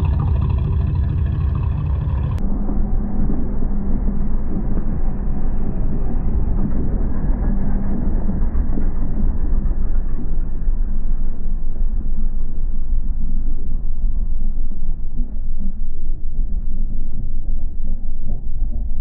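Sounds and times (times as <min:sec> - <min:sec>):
muffled car engine idling: 0:00.0 - 0:02.5.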